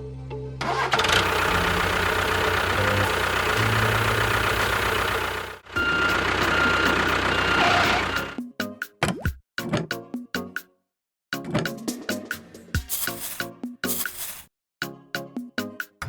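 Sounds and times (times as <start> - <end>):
vehicle engine throbbing: 0.7 - 8.4.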